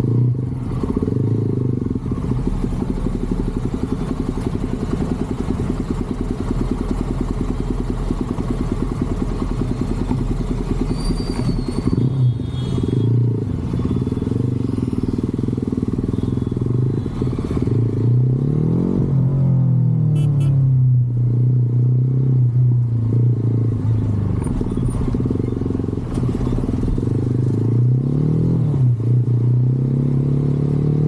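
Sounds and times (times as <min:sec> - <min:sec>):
motorcycle engine running: 0:00.0 - 0:11.0, 0:13.3 - 0:18.0.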